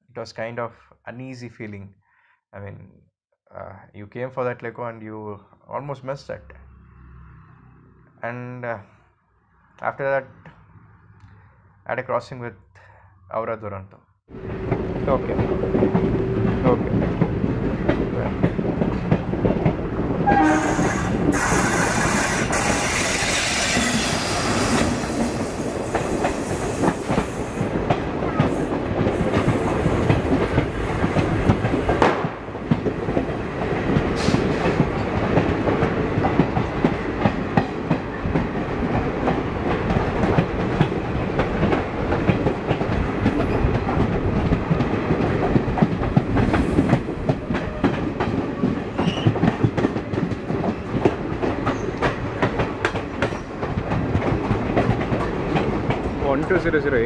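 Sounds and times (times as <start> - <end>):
train wheels clattering on rails: 14.5 - 57.0
train horn: 20.2 - 22.0.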